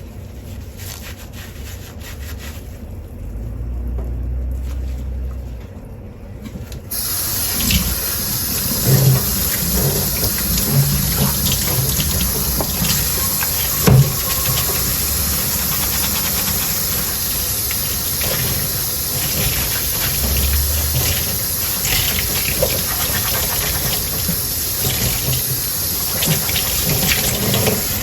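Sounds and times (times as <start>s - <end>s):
kitchen tap turned on: 6.9s - 28.0s
water running into sink: 6.9s - 28.0s.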